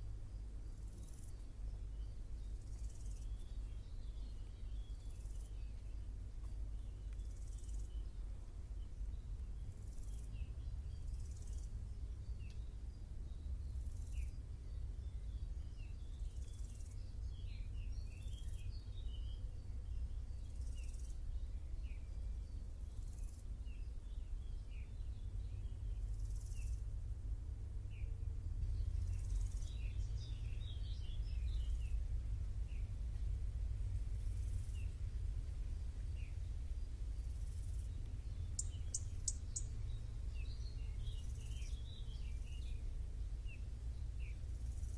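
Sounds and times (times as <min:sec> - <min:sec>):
small birds twittering: 0:00.0 - 0:27.1, 0:27.8 - 0:33.4, 0:34.1 - 0:44.9
insects buzzing: 0:25.5 - 0:27.2, 0:28.8 - 0:32.1, 0:34.0 - 0:35.2, 0:36.9 - 0:42.8, 0:44.2 - 0:44.9
low rumble: 0:26.9 - 0:44.9.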